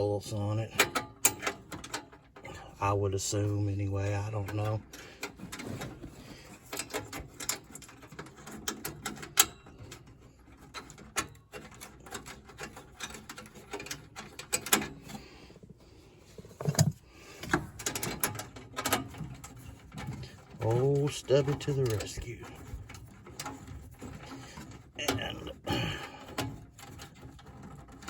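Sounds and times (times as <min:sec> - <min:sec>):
hands working metal parts and tools: 0:00.0 - 0:28.0.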